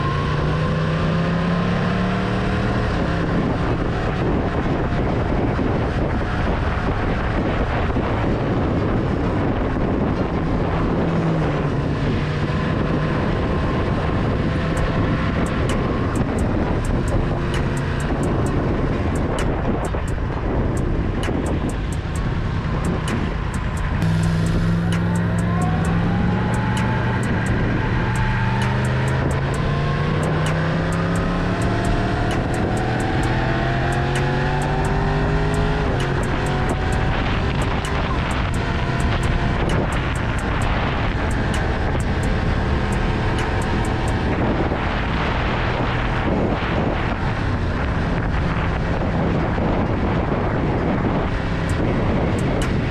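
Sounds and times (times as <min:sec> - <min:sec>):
motorcycle engine under way: 0:09.4 - 0:47.4.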